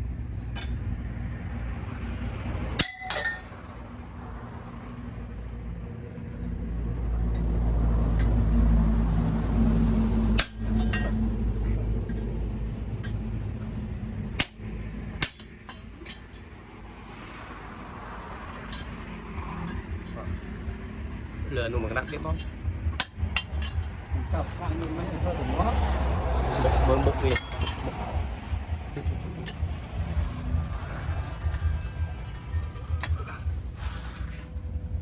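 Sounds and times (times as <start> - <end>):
low steady rumble: 0.0 - 35.0
metallic clinks and knocks: 2.8 - 3.8, 10.4 - 13.7, 15.2 - 16.8, 18.4 - 24.8, 27.0 - 33.6.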